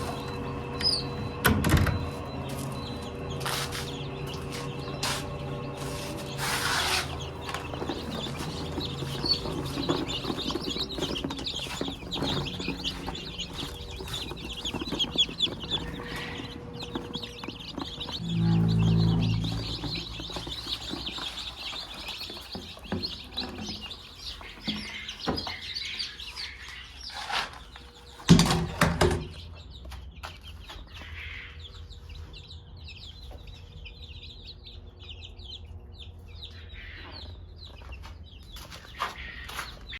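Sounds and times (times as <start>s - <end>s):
chickens clucking: 2.0s - 32.4s.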